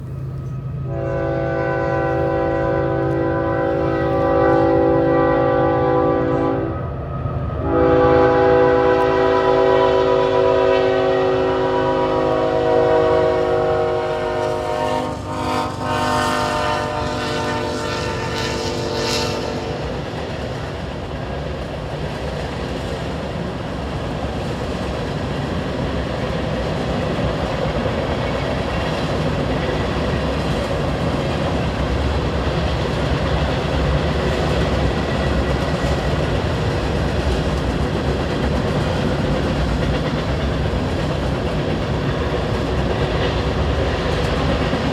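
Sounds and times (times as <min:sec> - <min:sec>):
freight cars rumbling on rails: 0:00.0 - 0:44.9
locomotive air horn: 0:00.8 - 0:07.0, 0:07.6 - 0:20.2.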